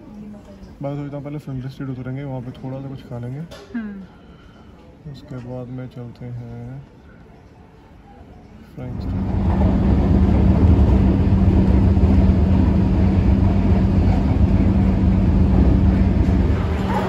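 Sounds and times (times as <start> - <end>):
electric train rumbling: 8.8 - 17.0.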